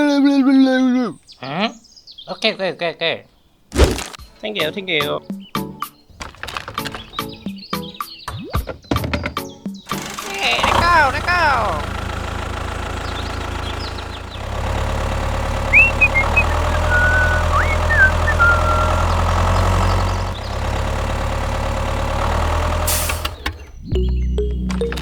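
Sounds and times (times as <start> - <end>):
tractor engine running: 9.9 - 25.0.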